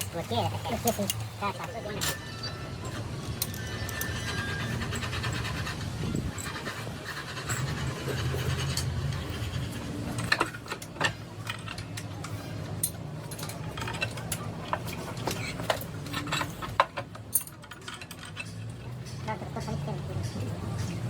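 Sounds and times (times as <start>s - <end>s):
metal tools clinking and tapping: 0.0s - 21.0s.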